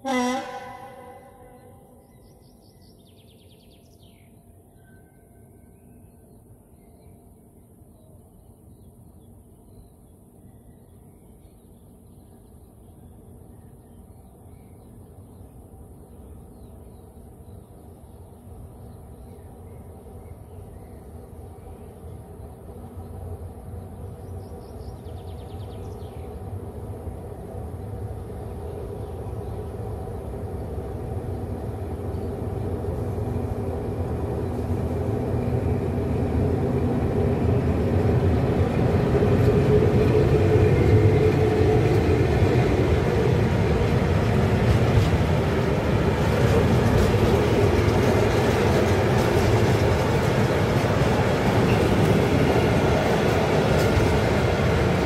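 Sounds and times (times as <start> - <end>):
train rumble approaching: 17.6 - 55.0.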